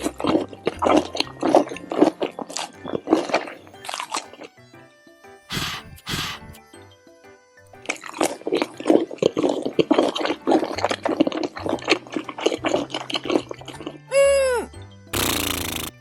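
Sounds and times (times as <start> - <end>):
wet slurping and gulping: 0.0 - 4.6, 5.5 - 6.6, 7.8 - 14.1.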